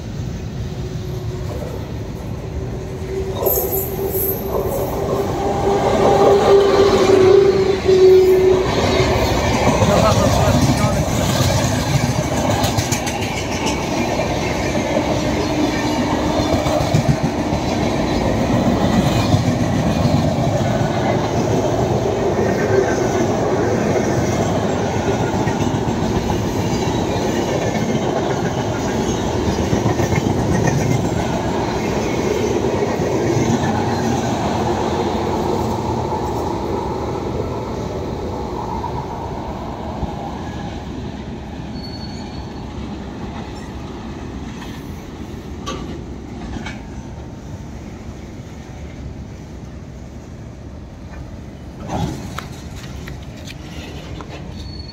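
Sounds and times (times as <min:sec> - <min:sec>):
train wagons rumbling past: 0:00.0 - 0:54.9
high wheel squeak: 0:41.7 - 0:42.8, 0:53.5 - 0:54.9.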